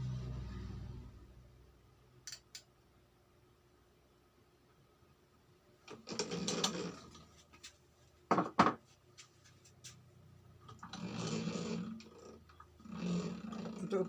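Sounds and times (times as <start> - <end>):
machine running and rasping: 10.7 - 14.0.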